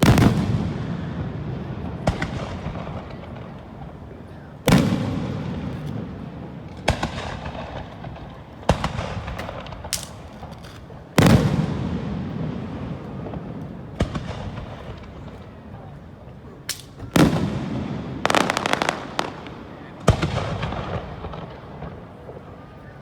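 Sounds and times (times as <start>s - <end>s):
sharp firework bangs: 0.0s - 3.6s, 4.7s - 10.3s, 16.7s - 22.0s
fireworks shells booming: 0.0s - 15.7s, 16.7s - 22.5s
rolling echo: 0.0s - 23.0s.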